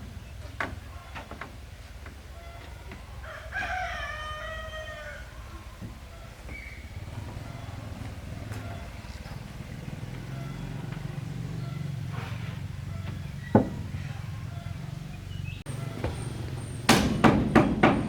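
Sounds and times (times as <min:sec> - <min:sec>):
small engine running: 0:06.8 - 0:16.9.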